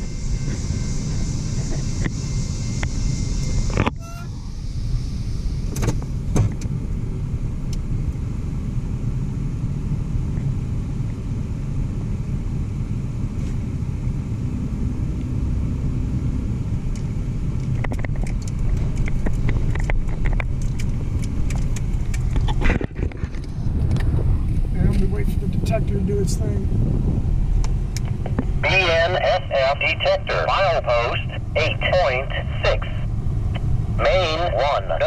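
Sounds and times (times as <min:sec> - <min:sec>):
sharp clicks of wheels: 0:16.9 - 0:25.1.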